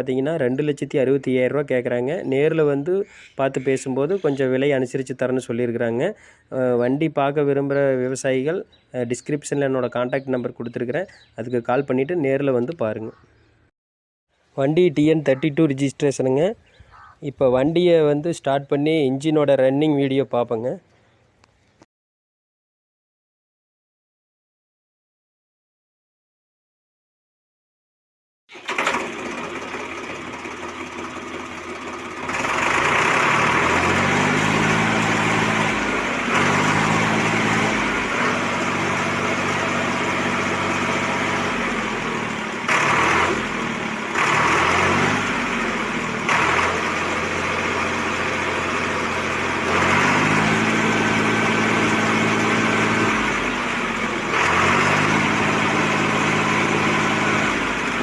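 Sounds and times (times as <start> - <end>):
tractor diesel engine revving: 28.5 - 58.0.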